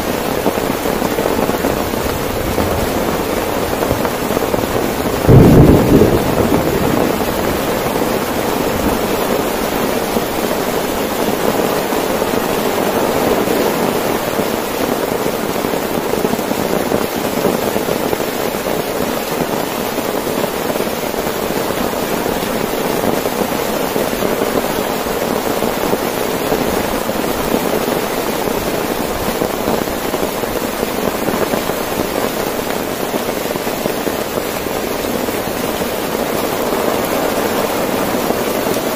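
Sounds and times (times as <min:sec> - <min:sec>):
heavy rain on a tent: 0:00.0 - 0:38.9
thunder clap: 0:01.0 - 0:10.5.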